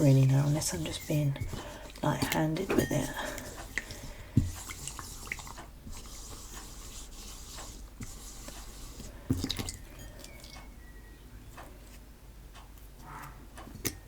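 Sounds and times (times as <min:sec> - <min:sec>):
slime squelching: 0:00.0 - 0:10.7.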